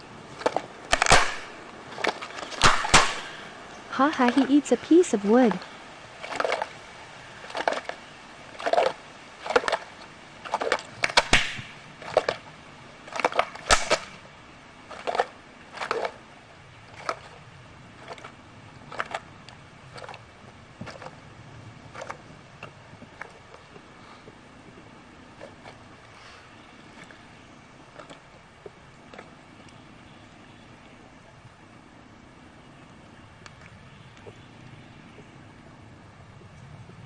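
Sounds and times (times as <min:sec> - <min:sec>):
animal chewing wood: 0:00.0 - 0:03.4, 0:05.5 - 0:14.2, 0:14.8 - 0:29.9.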